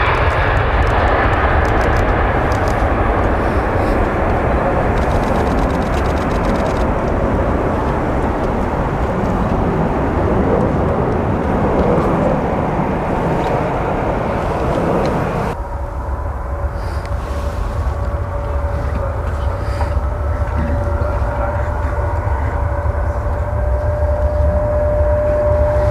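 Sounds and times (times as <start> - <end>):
jet engines roaring: 0.0 - 25.9
steady whine: 0.0 - 25.9.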